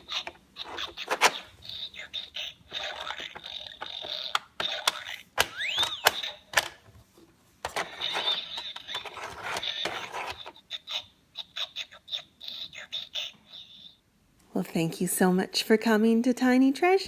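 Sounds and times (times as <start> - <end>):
plastic toy clicks and rattles: 0.0 - 1.8, 2.7 - 6.9, 7.6 - 10.6
short toy squeak: 7.9 - 11.5.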